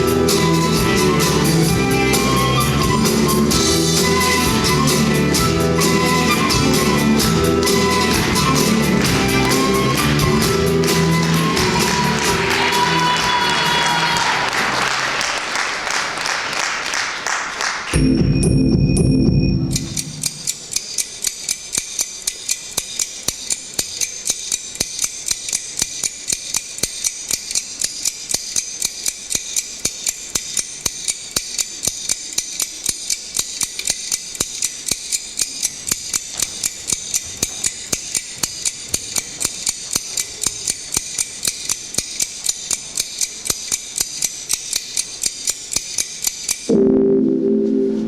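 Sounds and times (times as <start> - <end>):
rapid ticking in dance soundtrack: 19.6 - 46.7
steady high hiss: 29.1 - 42.3.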